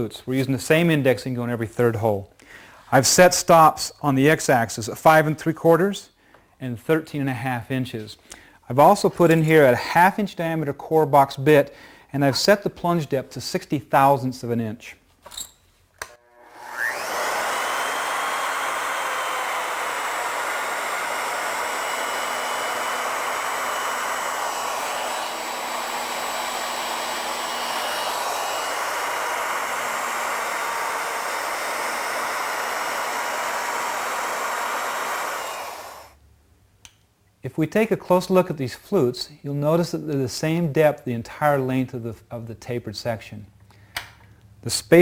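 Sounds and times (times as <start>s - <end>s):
router milling wood: 16.2s - 36.2s.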